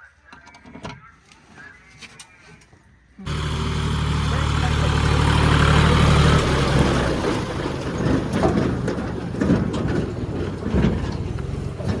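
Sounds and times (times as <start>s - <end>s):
diesel engine humming: 3.2s - 12.0s
machinery rumbling: 3.2s - 12.0s
knocks and clanks: 3.3s - 12.0s.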